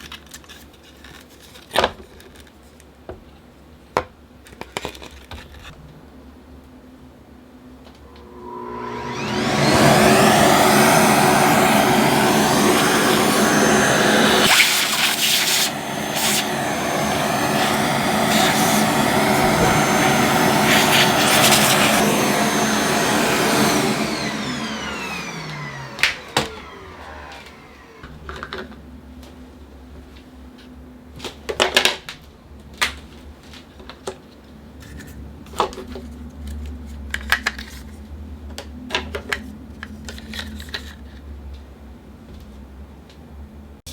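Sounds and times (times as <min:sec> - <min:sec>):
small electric motor whining: 0:08.0 - 0:28.1.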